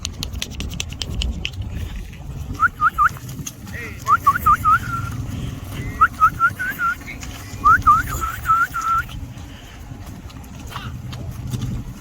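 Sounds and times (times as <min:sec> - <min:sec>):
person whistling: 0:02.6 - 0:03.2, 0:04.1 - 0:05.1, 0:06.0 - 0:07.0, 0:07.6 - 0:09.1.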